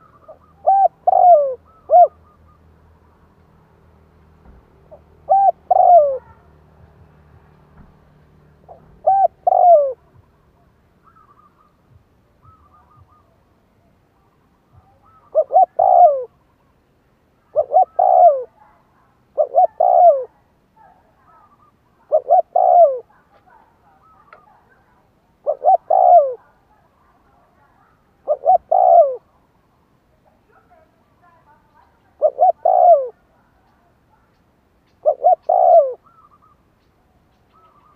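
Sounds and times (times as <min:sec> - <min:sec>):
dove cooing: 0:00.0 - 0:02.9, 0:04.8 - 0:07.1, 0:08.6 - 0:16.6, 0:17.4 - 0:29.5, 0:30.4 - 0:34.3, 0:34.9 - 0:36.7, 0:37.4 - 0:37.9.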